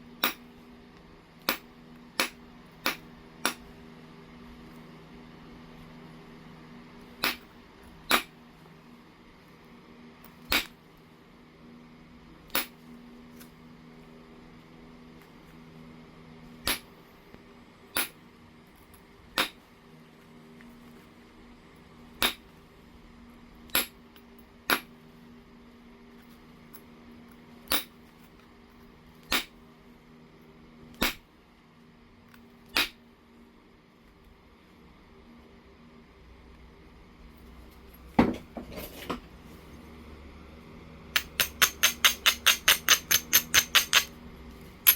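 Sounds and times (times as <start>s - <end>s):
stone knapping clicks: 41.2s - 44.2s.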